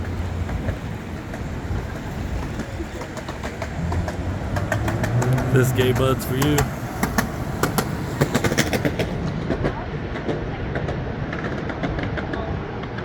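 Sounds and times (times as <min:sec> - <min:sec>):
river water roaring: 0:00.0 - 0:09.5.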